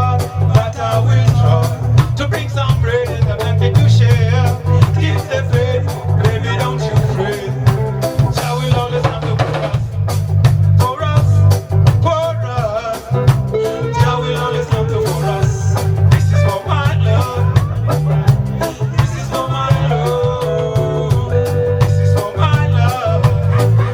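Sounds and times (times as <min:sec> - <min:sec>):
person singing: 0:00.0 - 0:09.8, 0:10.8 - 0:23.9
drum kit beat: 0:00.0 - 0:23.9
heavy bass line: 0:00.0 - 0:23.9
reggae band playing: 0:00.0 - 0:23.9.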